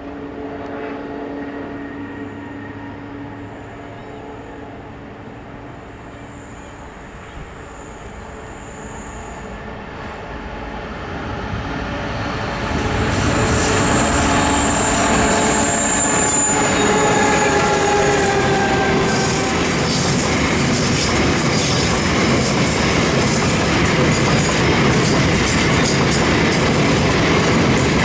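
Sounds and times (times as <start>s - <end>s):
diesel train engines: 0.0s - 28.0s
high wheel squeal: 12.5s - 28.0s.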